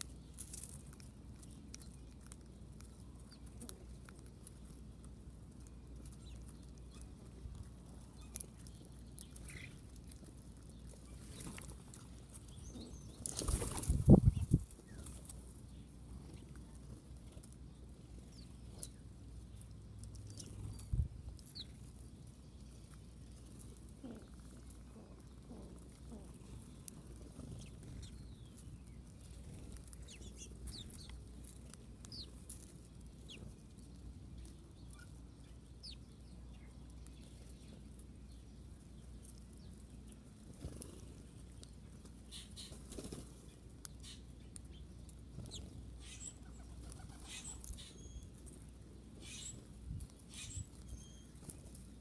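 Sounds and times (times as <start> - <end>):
faint low hum: 0.0 - 52.0
bird wing flutters: 13.2 - 14.5.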